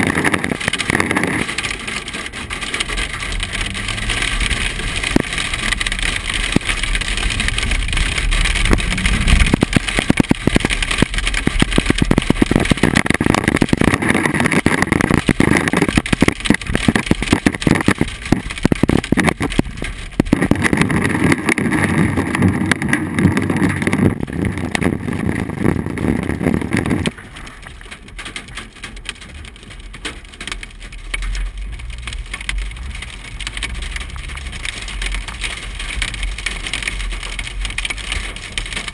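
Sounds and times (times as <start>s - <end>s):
hail rattling on car roof: 0.0s - 38.9s
vehicle rumble: 0.0s - 38.9s.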